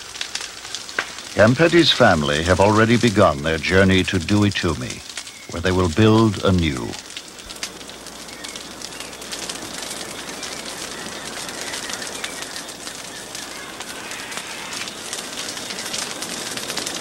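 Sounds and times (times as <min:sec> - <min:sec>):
rainforest hiss with crackles: 0:00.0 - 0:17.0
bird calls: 0:04.7 - 0:06.9, 0:07.9 - 0:16.6.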